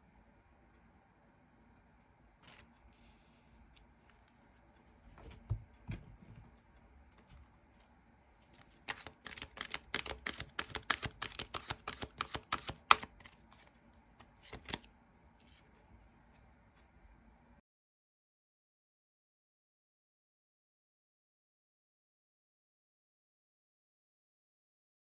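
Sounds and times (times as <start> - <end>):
cards clicking: 8.5 - 14.9
cards thumping softly: 8.5 - 14.9.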